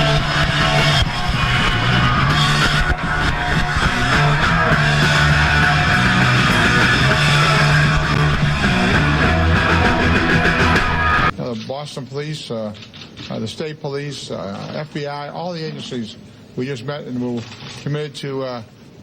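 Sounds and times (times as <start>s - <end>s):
punk band playing live: 0.0s - 11.3s.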